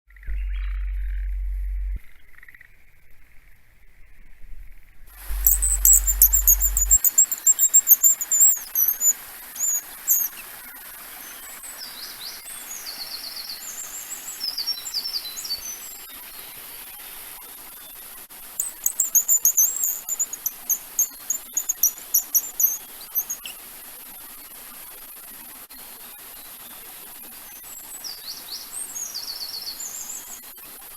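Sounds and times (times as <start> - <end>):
steady high hiss: 5.1 - 30.9
bird call chirps: 5.2 - 10.4, 18.6 - 23.6.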